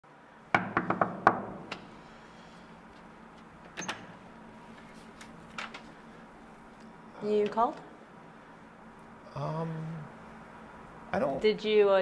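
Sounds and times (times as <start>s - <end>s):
knocking on a door: 0.5s - 1.6s.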